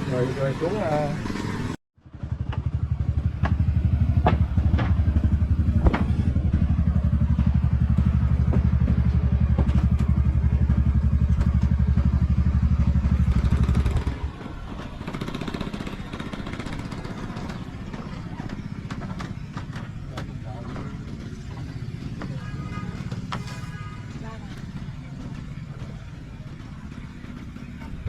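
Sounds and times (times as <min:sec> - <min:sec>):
small engine running: 0:00.0 - 0:22.6
sharp knocks: 0:04.2 - 0:06.3.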